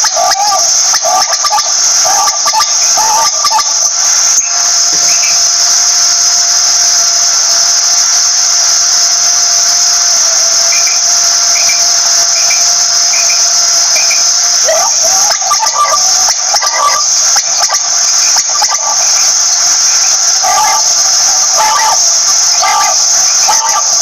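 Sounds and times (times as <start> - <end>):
quail double calls: 0.0 - 3.7, 14.6 - 19.3, 20.4 - 24.0
shrill high buzz: 0.0 - 24.0.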